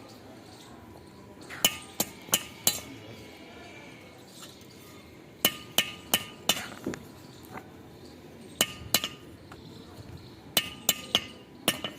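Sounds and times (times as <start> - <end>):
metal-on-metal taps ringing: 8.6 - 9.3, 10.6 - 11.9.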